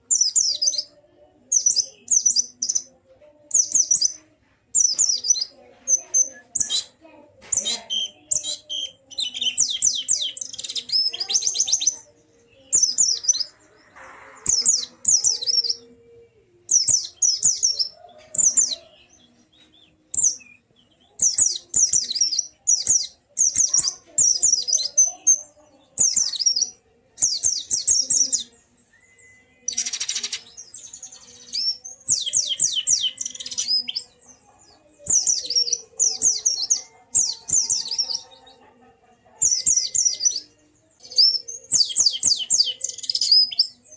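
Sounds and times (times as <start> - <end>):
bird twittering: 3.5 - 12.0, 16.7 - 18.9, 19.6 - 34.2.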